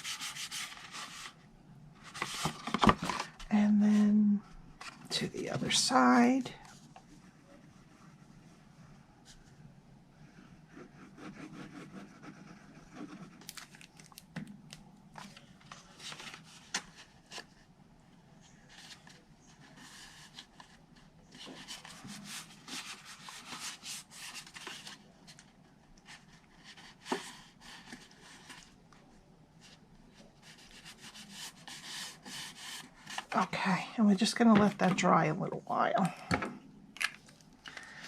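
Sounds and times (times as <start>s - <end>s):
paper rustling and rubbing: 0.0s - 1.4s, 2.0s - 3.5s, 10.2s - 14.2s, 15.2s - 17.6s, 18.5s - 28.8s, 29.6s - 33.5s.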